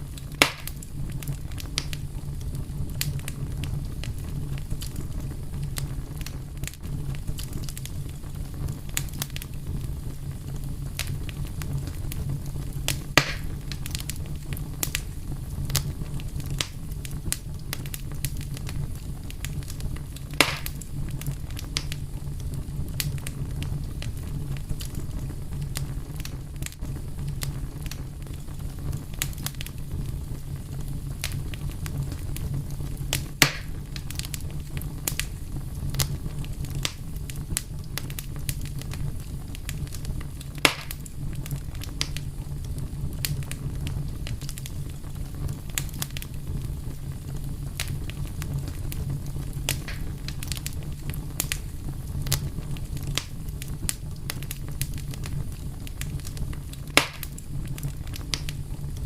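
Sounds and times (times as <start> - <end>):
fire crackling: 0.0 - 59.0
fire popping: 0.0 - 59.0
fire rumbling: 0.0 - 59.0.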